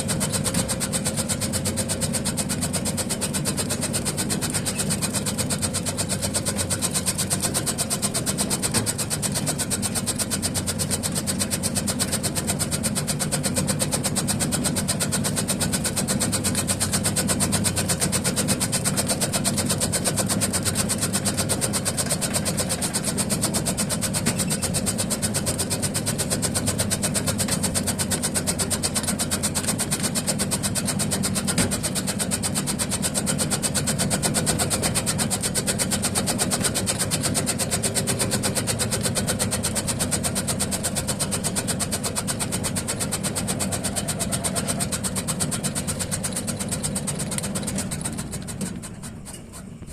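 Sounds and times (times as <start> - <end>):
chopping machine running: 0.0 - 49.9.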